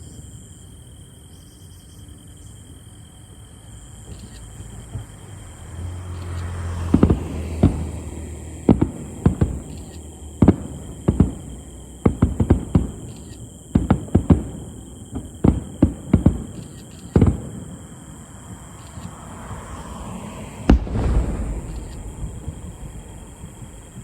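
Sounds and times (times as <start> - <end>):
fireworks bangs: 6.3 - 19.1, 19.7 - 24.0.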